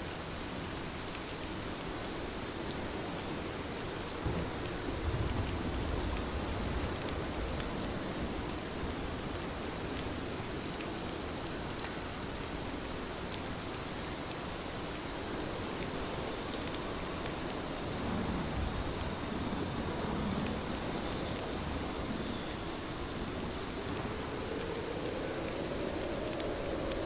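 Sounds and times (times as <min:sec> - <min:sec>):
heavy rain falling: 0:00.0 - 0:27.0
raindrop ticks: 0:18.4 - 0:27.0.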